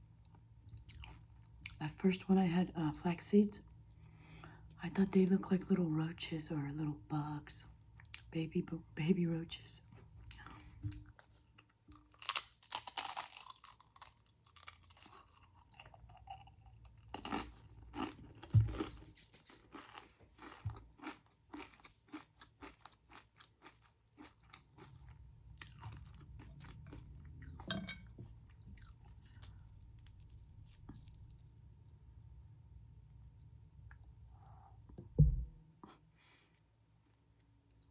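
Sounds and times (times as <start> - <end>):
soft chewing: 0.2 - 1.8, 9.9 - 32.0, 33.2 - 34.8, 36.6 - 37.9.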